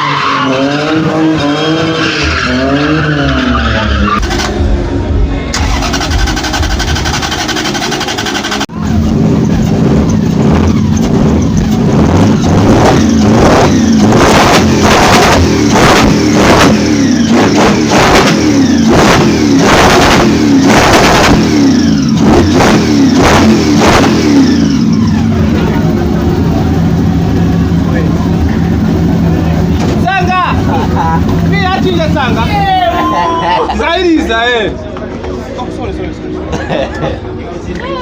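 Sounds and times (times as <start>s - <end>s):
car engine revving hard: 0.0s - 4.5s, 5.6s - 26.0s.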